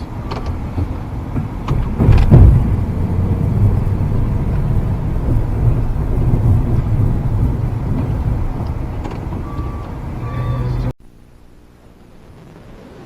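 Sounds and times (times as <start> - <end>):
diesel engine running: 0.6 - 11.3.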